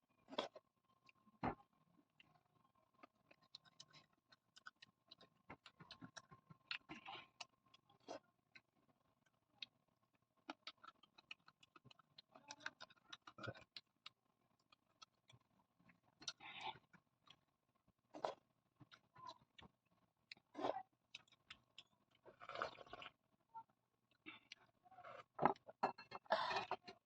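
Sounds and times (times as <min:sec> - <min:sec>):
chewing food crisp crackles: 0:02.9 - 0:17.4, 0:18.1 - 0:23.2.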